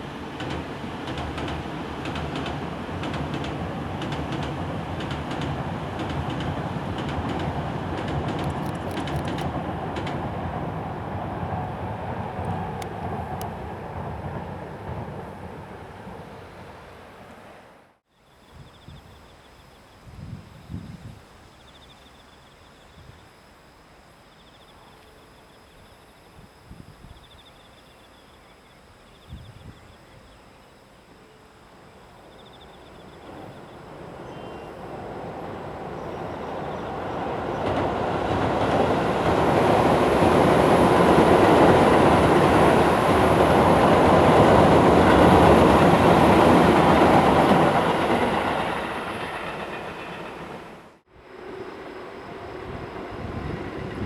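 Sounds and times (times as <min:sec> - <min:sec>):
electric train passing: 0:00.0 - 0:18.0, 0:31.0 - 0:54.0.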